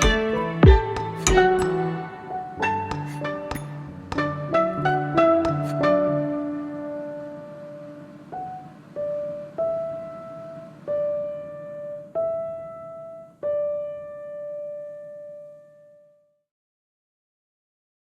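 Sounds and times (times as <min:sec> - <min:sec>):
slow solo piano melody: 0:05.2 - 0:16.1.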